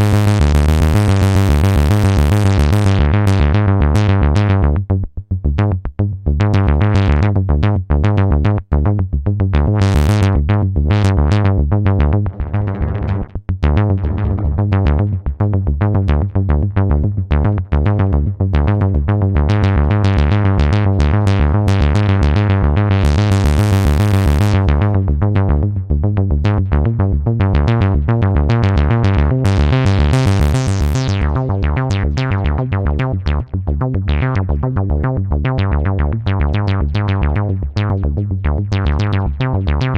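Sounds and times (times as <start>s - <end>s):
synthesizer sequenced pattern: 0.0s - 4.6s, 19.5s - 25.8s, 27.6s - 38.0s
deep synth bass: 0.0s - 39.9s.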